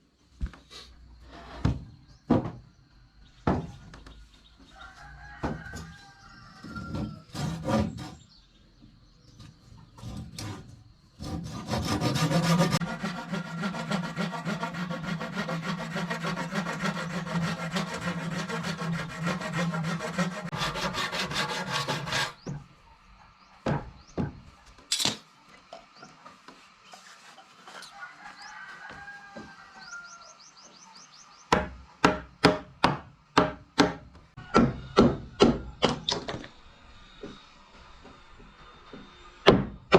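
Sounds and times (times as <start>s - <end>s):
tool rasping wood: 7.0s - 8.2s, 10.0s - 22.6s.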